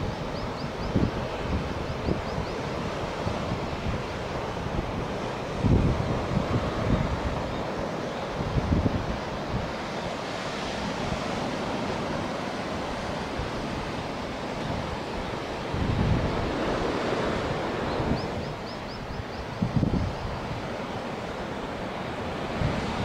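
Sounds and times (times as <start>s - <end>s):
wind buffeting microphone: 0.0s - 23.0s
surf breaking on beach: 2.7s - 18.6s.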